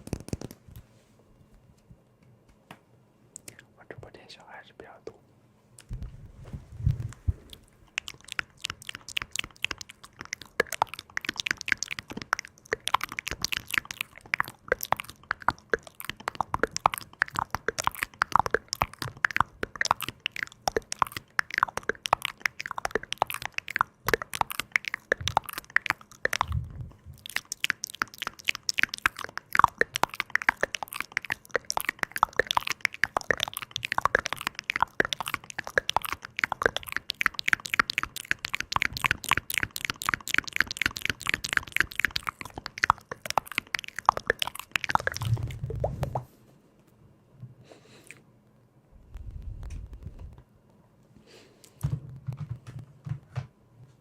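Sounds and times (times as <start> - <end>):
crisp crackling and clicking: 0.0 - 0.9, 7.1 - 46.2, 49.0 - 50.4.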